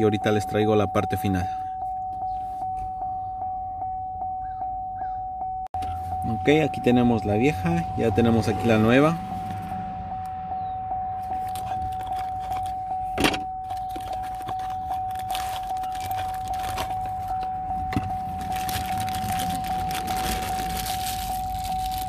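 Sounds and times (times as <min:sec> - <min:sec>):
steady electronic beep tone: 0:00.0 - 0:11.3.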